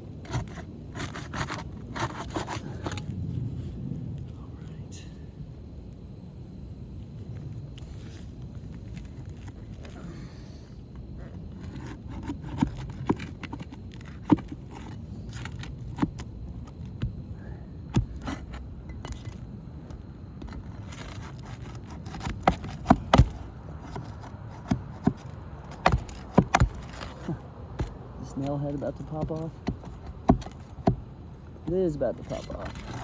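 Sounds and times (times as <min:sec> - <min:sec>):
tool scraping under shingles: 0:00.0 - 0:03.7, 0:11.2 - 0:17.2, 0:17.8 - 0:33.0.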